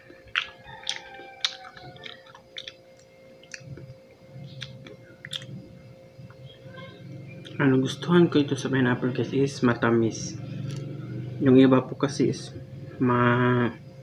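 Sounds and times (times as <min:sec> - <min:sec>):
person chewing pineapple: 0:00.0 - 0:06.4, 0:10.6 - 0:10.9.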